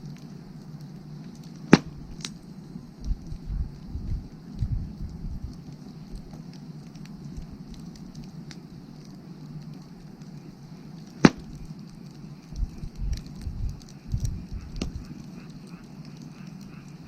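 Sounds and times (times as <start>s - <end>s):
low rumbles: 0.0s - 17.0s
wood fire crackling: 0.0s - 17.0s
fire loud pop: 11.2s - 11.7s.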